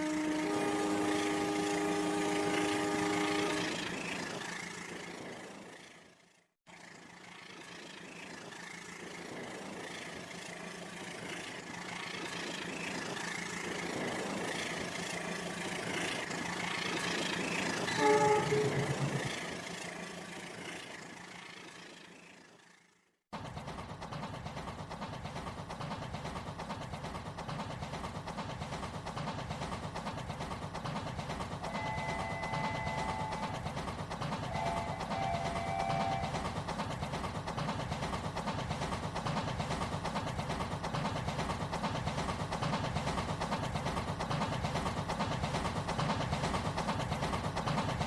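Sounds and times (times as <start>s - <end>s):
train horn blast: 0.0s - 4.1s, 17.9s - 19.4s, 31.7s - 33.5s, 34.5s - 36.4s
train rumble: 0.0s - 48.0s.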